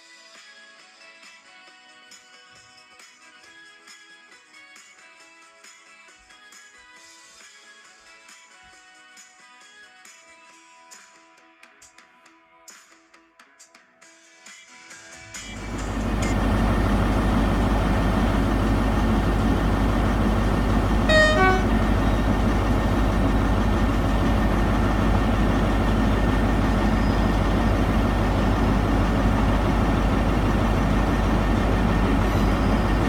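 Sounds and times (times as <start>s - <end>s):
train diesel engines running: 15.4s - 33.0s
two-tone train horn: 15.6s - 28.5s, 29.3s - 33.0s.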